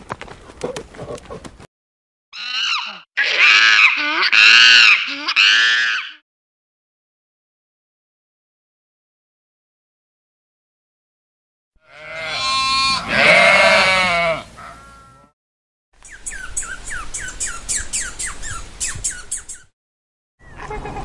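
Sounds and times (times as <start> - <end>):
sheep bleating: 11.8 - 15.3.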